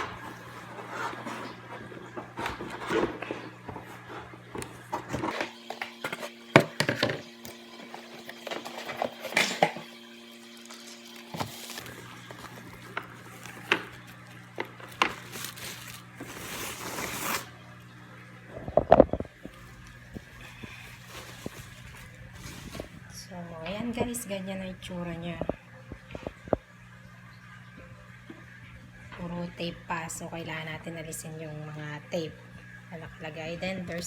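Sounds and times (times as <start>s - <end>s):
packaging rustling: 10.4s - 17.5s, 19.4s - 23.2s.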